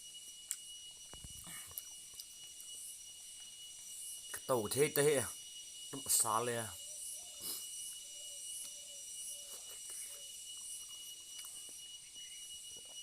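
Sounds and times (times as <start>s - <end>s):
steady high hiss: 0.0s - 13.0s
thin whine: 0.0s - 13.0s
person chewing food: 1.3s - 2.7s, 9.5s - 11.9s.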